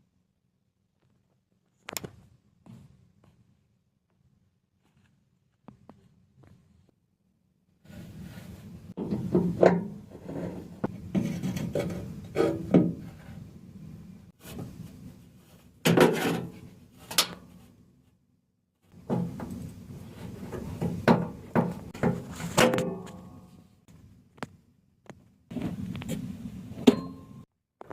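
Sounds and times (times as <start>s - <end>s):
knocks and clunks of parts: 9.0s - 13.2s, 15.8s - 17.6s, 18.9s - 23.6s, 26.8s - 27.9s.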